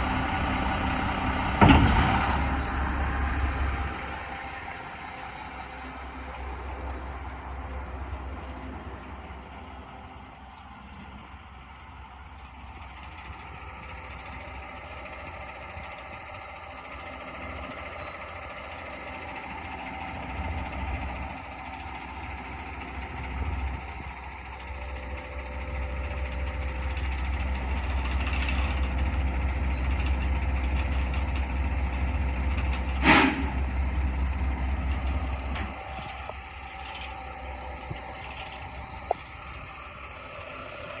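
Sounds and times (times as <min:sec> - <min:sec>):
diesel truck engine rumbling: 0:00.0 - 0:41.0
sharp burst: 0:33.0 - 0:33.6.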